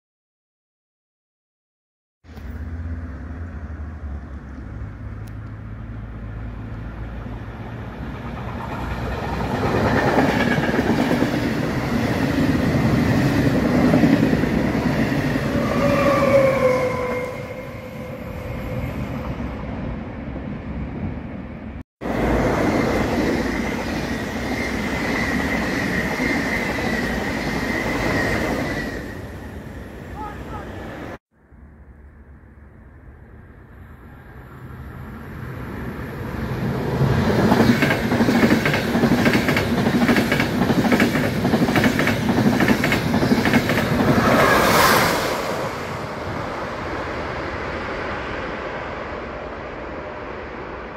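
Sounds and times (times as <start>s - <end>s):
train whine: 2.3s - 31.2s, 32.7s - 50.9s
train wheels rushing on rail: 6.9s - 21.3s, 22.0s - 31.2s, 35.3s - 50.9s.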